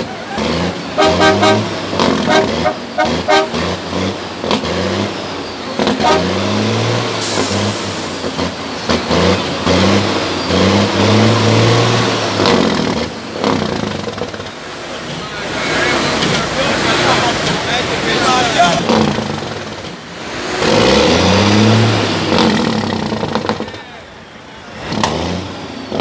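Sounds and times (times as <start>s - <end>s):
pitched sounds: 0.0s - 4.0s
dense noisy background: 0.0s - 26.0s
heavy truck engines running: 0.0s - 26.0s.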